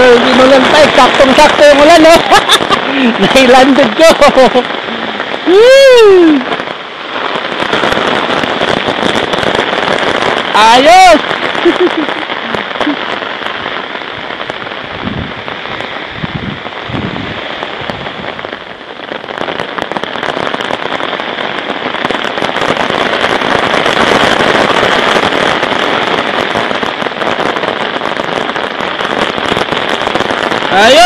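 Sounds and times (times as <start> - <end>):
rain pattering: 0.0 - 31.0.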